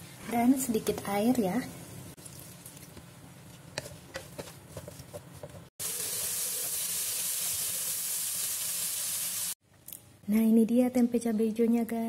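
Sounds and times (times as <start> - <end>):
wooden spatula stirring: 2.4 - 5.7
food sizzling in a wok: 5.8 - 9.6.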